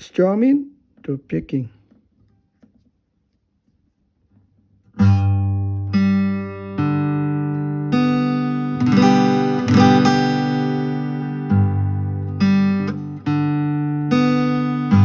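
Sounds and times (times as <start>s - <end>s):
guitar strumming and picking: 5.0s - 15.0s.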